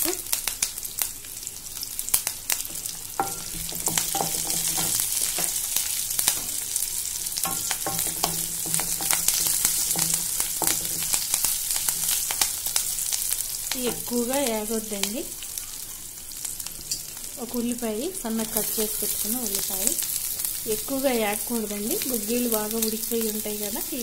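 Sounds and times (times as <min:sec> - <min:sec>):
spices sizzling in hot oil: 0:00.0 - 0:24.0
wooden spatula stirring in pan: 0:02.6 - 0:14.7.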